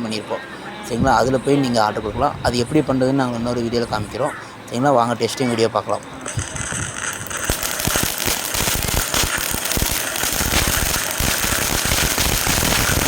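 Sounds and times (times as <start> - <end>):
ground firework crackling: 6.2 - 13.0.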